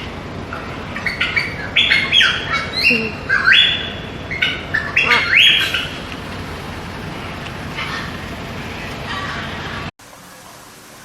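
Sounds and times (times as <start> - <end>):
parrot squawking: 0.5 - 6.2, 7.1 - 9.9.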